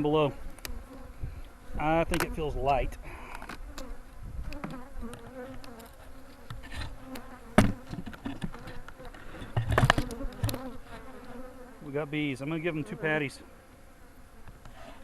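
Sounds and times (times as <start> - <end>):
honeybees buzzing: 0.0 - 15.0
knocks on beehive: 7.6 - 8.4.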